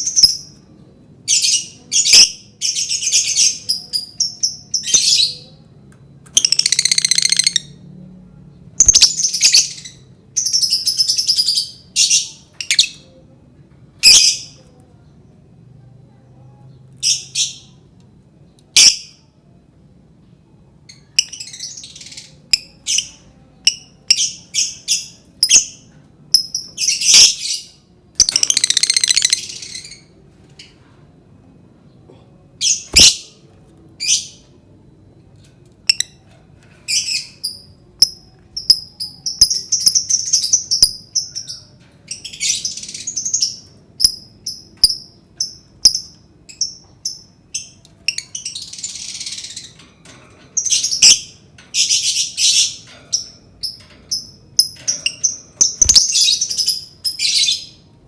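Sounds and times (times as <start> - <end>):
lovebird chirping: 6.3 - 7.8, 8.8 - 13.0, 20.9 - 30.1, 32.6 - 33.3, 50.6 - 57.8
lovebird chattering trill: 28.2 - 29.9, 54.6 - 57.6.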